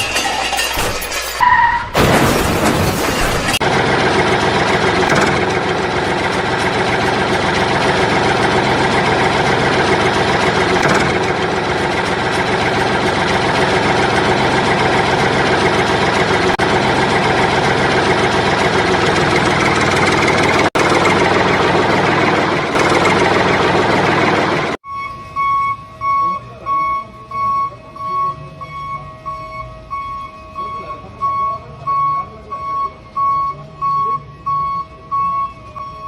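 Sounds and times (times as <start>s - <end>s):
vehicle engine idling: 3.4s - 24.8s.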